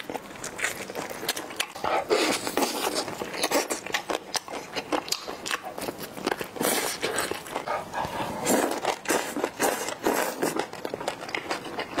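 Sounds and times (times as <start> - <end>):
wet chewing and lip smacking: 0.0 - 12.0.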